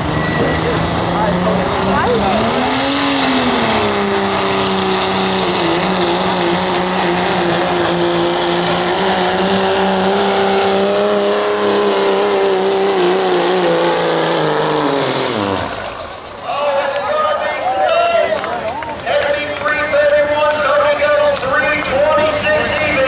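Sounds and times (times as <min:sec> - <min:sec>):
truck engine at full load: 0:00.0 - 0:23.0.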